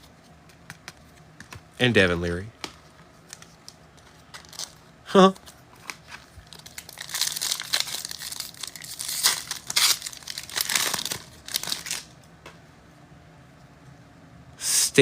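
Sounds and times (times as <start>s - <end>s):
plastic wrapper tearing and crinkling: 4.0s - 4.8s, 5.4s - 12.2s.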